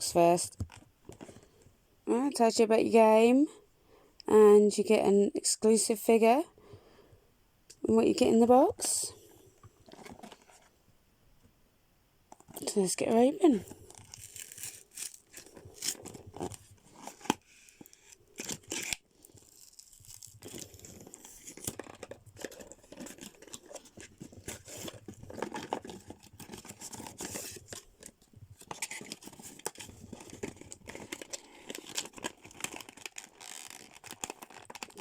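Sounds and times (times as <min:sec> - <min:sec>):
packaging clicks and snaps: 0:13.7 - 0:35.0
cardboard box tearing: 0:13.8 - 0:27.8.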